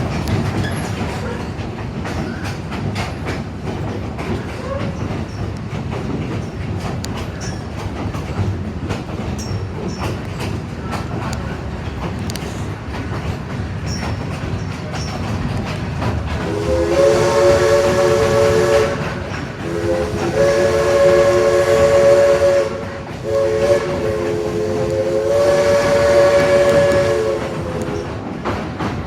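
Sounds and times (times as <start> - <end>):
train rumbling: 0.0 - 29.0
train wheels clickety-clack: 0.0 - 29.0
steam locomotive chime whistle: 16.4 - 28.1.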